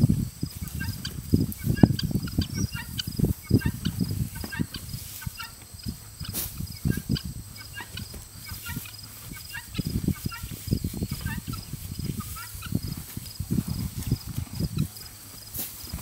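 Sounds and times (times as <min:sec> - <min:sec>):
poultry calling harshly: 0:00.6 - 0:12.9.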